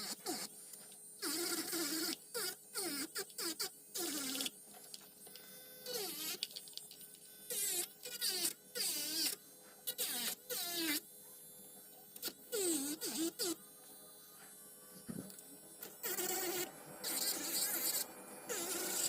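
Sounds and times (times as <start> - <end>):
electric nail drill buzzing: 0.0 - 19.0.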